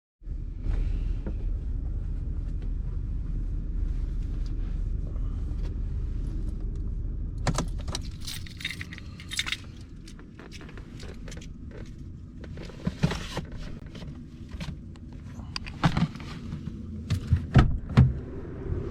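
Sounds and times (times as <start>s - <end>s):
truck engine rumbling: 0.2s - 18.9s
keys jangling: 7.7s - 11.5s.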